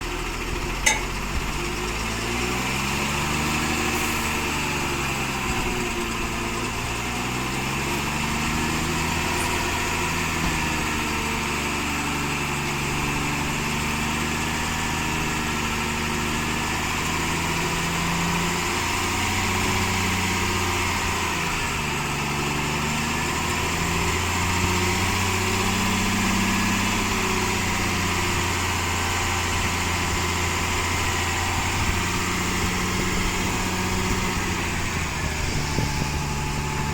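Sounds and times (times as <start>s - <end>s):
diesel truck engine running: 0.0s - 36.9s
sharp click: 0.9s - 1.4s.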